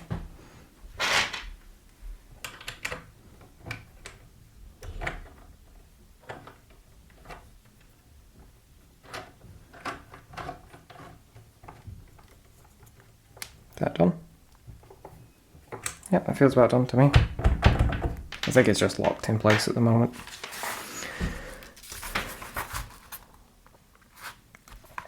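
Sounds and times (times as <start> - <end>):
clicks and knocks of parts: 2.4 - 5.5, 9.0 - 13.8.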